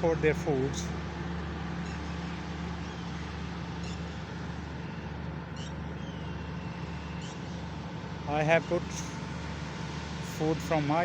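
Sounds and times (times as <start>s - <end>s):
low background hum: 0.0s - 11.0s
small birds chirping: 1.8s - 9.2s.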